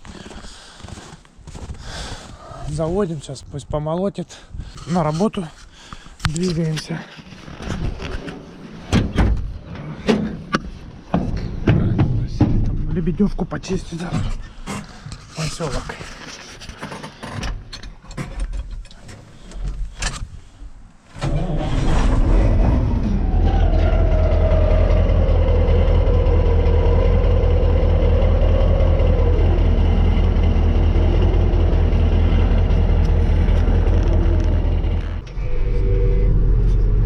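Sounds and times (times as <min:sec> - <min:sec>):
diesel engine running: 0:21.2 - 0:37.0
engine whine: 0:21.2 - 0:37.0.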